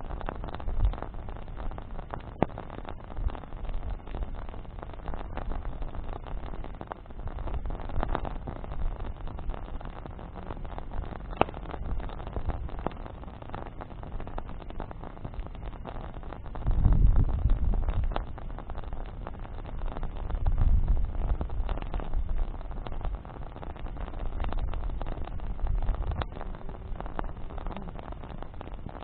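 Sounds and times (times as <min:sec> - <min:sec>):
campfire crackling: 0:00.0 - 0:29.0
sharp fire pops: 0:00.0 - 0:29.0
low rumble: 0:16.4 - 0:29.0.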